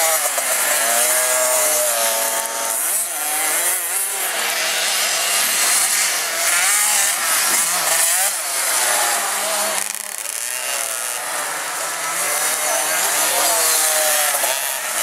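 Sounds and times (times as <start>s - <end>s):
motocross bikes revving: 0.0s - 15.0s.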